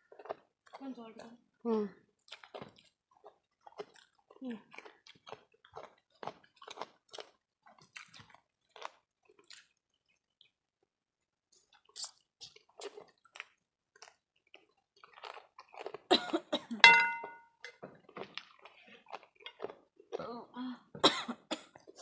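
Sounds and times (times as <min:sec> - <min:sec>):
chewing and lip-smacking: 0:00.0 - 0:01.4, 0:02.2 - 0:16.1, 0:18.0 - 0:20.2
tableware clinking: 0:16.8 - 0:17.8.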